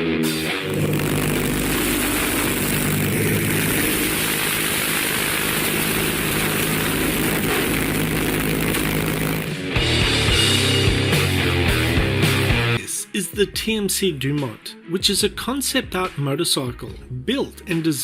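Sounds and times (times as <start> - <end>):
aircraft piston engine droning: 0.5 - 9.8.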